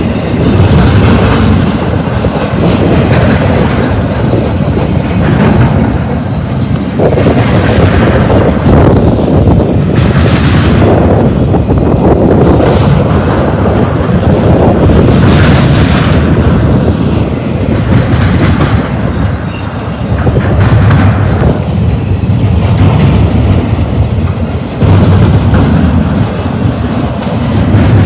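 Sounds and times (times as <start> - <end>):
freight train wheels clattering: 0.0 - 28.0
high wheel squeal: 6.1 - 10.0, 14.4 - 15.3, 18.8 - 20.6.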